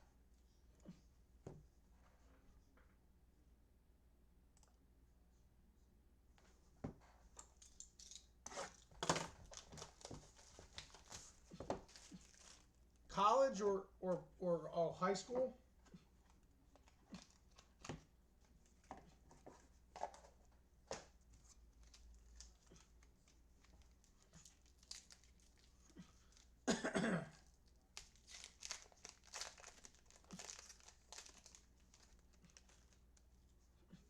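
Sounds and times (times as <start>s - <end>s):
wrappers crinkling and tearing: 7.6s - 12.8s, 21.5s - 26.5s, 27.4s - 33.3s.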